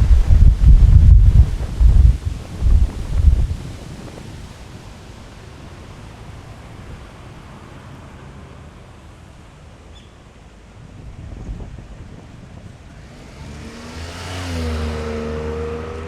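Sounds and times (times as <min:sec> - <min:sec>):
wind buffeting microphone: 0:00.0 - 0:05.8, 0:10.8 - 0:14.8
steady outdoor hiss: 0:00.0 - 0:16.0.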